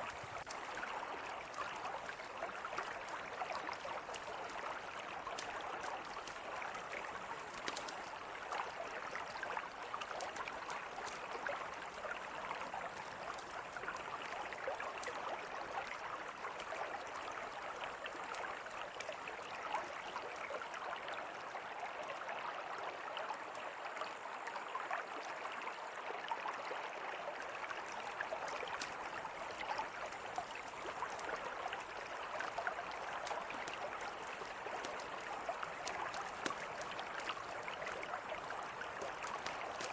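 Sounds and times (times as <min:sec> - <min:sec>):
campfire crackling: 0:00.0 - 0:00.9, 0:05.4 - 0:09.3, 0:10.0 - 0:12.2, 0:28.2 - 0:29.4, 0:32.0 - 0:39.9.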